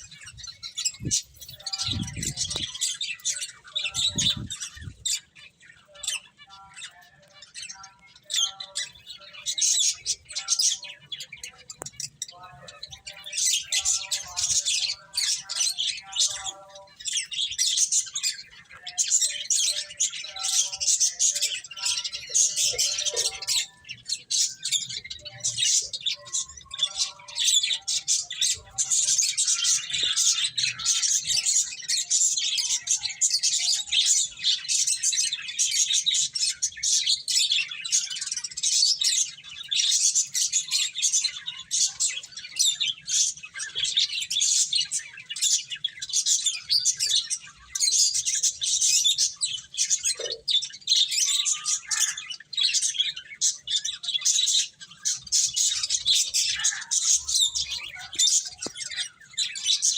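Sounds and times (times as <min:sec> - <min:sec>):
finches chirping: 0:00.0 - 0:59.9.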